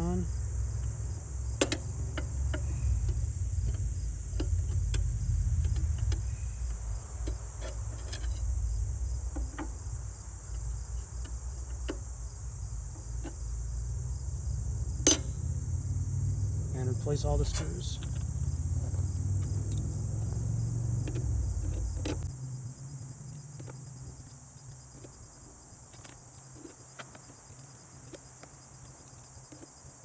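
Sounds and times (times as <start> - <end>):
low hum: 0.0 - 23.2
crickets chirring: 0.0 - 30.0.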